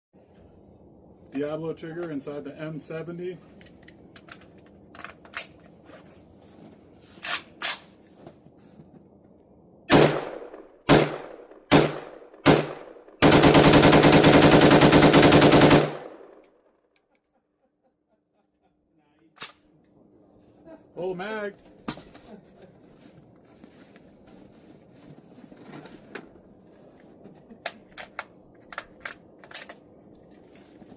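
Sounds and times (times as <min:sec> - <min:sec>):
rifle handling clicks: 0:03.6 - 0:05.6, 0:27.6 - 0:29.9
rapid string of rifle shots: 0:09.9 - 0:16.4
rifle single shots: 0:09.9 - 0:16.4.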